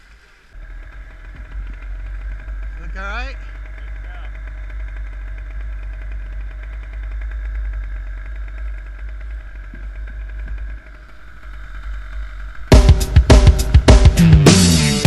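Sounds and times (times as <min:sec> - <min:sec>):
engine drone with whine: 0:00.0 - 0:15.0
loud music with drums: 0:12.7 - 0:15.0.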